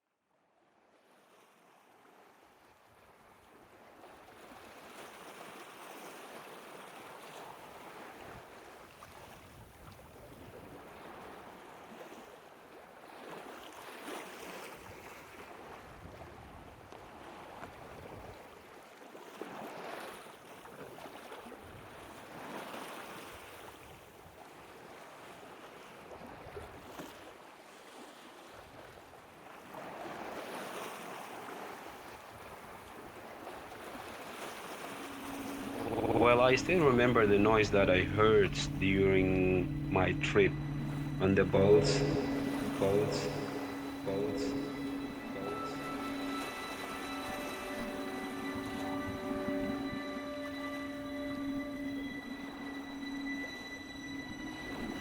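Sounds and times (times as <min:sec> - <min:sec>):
sea waves washing: 0:33.2 - 0:55.0.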